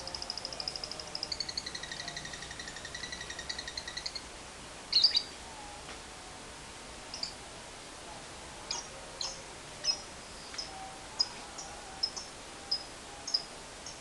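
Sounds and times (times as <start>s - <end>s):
bird high chirps: 0.1s - 4.3s, 4.9s - 5.3s.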